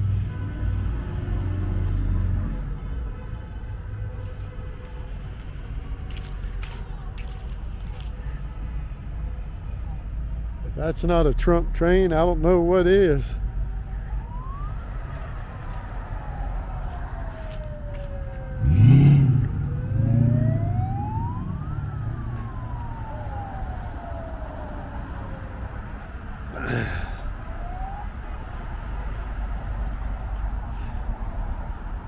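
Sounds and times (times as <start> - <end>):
street traffic: 0.0 - 32.0
vehicle siren wailing: 13.2 - 29.8
loud low horn blast: 18.5 - 20.3.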